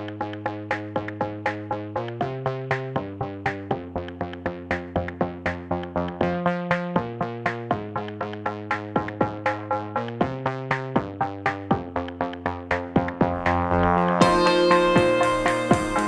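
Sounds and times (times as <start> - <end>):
drum machine beat: 0.0 - 16.0
sustained synthesizer chords: 3.2 - 16.0.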